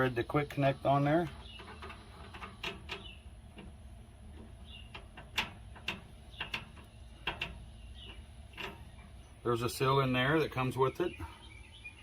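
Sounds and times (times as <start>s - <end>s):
plastic fitting clicking and tapping: 4.4s - 8.8s.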